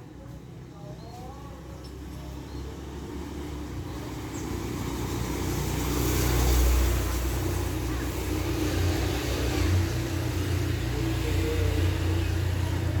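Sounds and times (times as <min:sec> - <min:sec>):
motor vehicle passing: 0:02.7 - 0:13.0.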